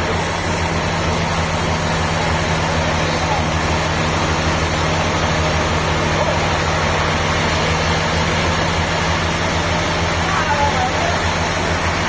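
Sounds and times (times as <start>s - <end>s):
engine humming at low speed: 0.0s - 12.0s.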